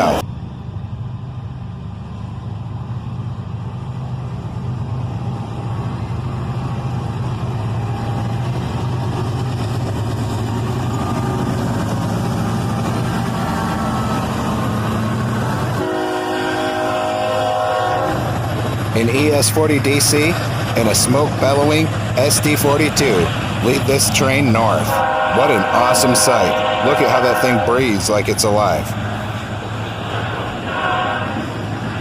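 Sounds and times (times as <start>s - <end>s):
diesel freight train rumble: 0.0s - 32.0s
locomotive air horn: 15.7s - 18.4s, 24.6s - 28.0s.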